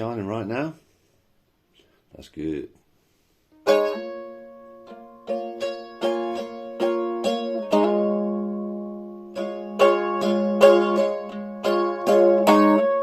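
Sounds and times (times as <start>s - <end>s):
small acoustic string instrument strummed: 3.5s - 13.0s.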